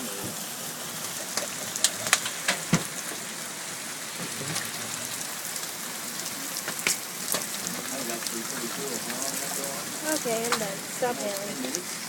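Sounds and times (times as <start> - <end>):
steady rain falling: 0.0 - 12.0
hailstones clicking: 0.4 - 12.0.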